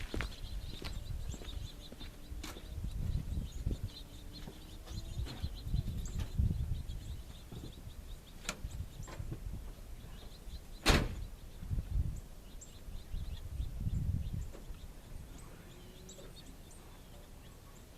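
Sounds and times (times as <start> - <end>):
faint bird chirps: 0.0 - 9.2, 9.9 - 17.9
microphone rumble: 0.0 - 10.4, 11.0 - 16.6
truck door shutting: 10.8 - 11.3.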